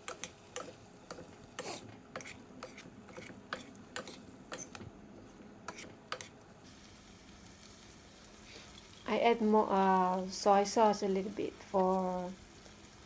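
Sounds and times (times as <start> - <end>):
utensil scraping a pan: 0.6 - 4.8.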